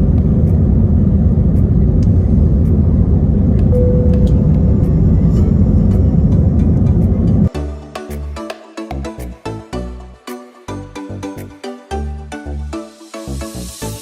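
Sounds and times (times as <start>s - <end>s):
aircraft cabin engine rumble: 0.0s - 7.5s
single tone: 3.7s - 4.6s.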